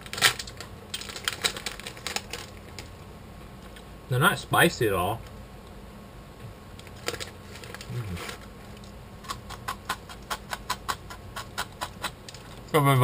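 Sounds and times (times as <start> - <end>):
crunching cracker sticks: 0.0 - 3.0, 6.8 - 12.7
snack bag rustling: 0.0 - 3.0, 6.8 - 10.5.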